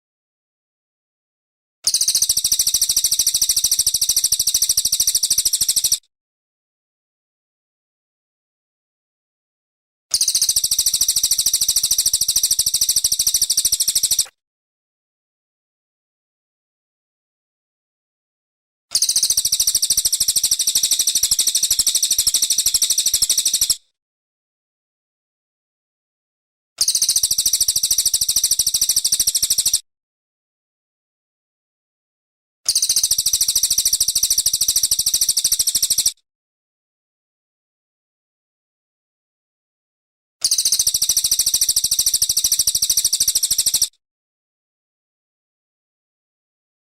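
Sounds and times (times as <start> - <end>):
bird singing high-pitched trill: 1.9 - 6.0, 10.1 - 14.3, 18.9 - 23.8, 26.8 - 29.8, 32.7 - 36.2, 40.4 - 43.9
songbird rapid high trill: 18.9 - 23.8, 40.4 - 43.9.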